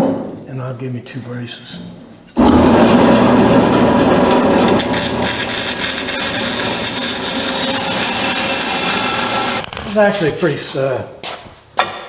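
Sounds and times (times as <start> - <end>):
power saw cutting plywood: 2.4 - 9.7.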